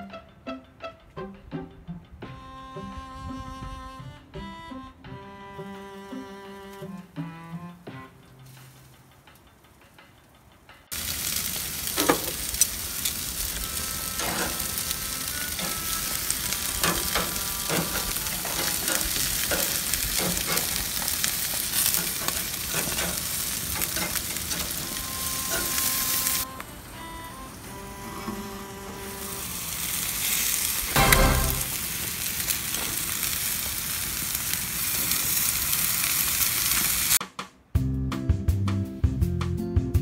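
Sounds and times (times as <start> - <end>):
skewers sizzling on grill: 8.3 - 9.4, 10.9 - 37.2
metal tongs clicking on grate: 15.5 - 26.2.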